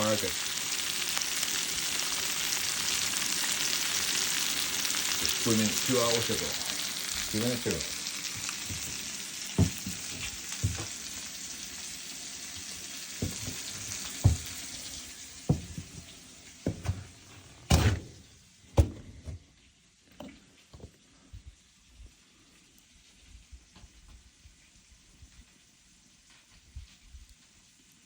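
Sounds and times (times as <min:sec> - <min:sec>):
fish sizzling in a pan: 0:00.0 - 0:17.4
knocks and taps: 0:09.6 - 0:10.0, 0:13.2 - 0:14.6.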